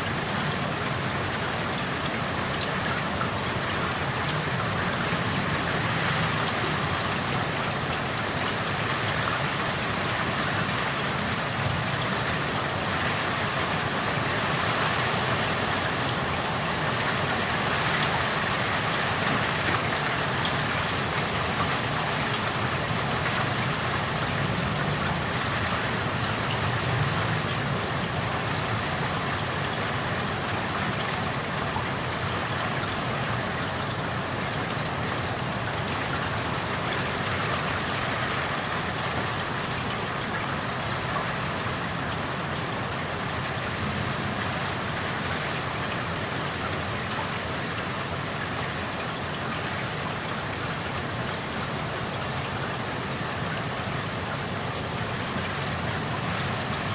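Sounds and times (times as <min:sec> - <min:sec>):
raindrops ticking on surfaces: 0:00.0 - 0:56.9
steady rain falling: 0:00.0 - 0:56.9.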